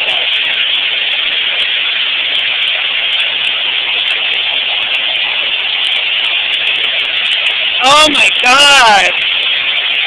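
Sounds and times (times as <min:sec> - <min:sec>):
heavy hail pelting down: 0:06.8 - 0:10.0.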